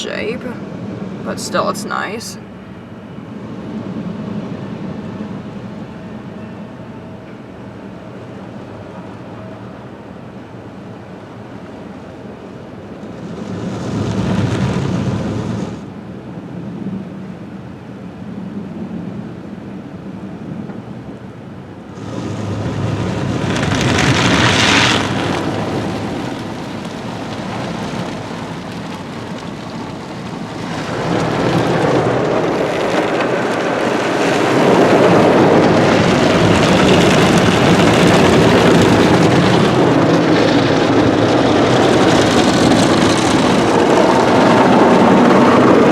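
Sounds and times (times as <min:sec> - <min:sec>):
car wash water jets spraying: 0:12.9 - 0:16.0, 0:21.9 - 0:45.9.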